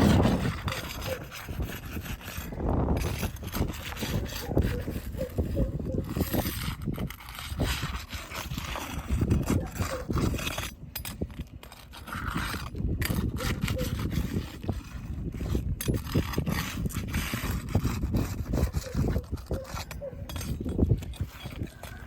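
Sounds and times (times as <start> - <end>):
tools scraping on shingles: 0.0 - 22.0.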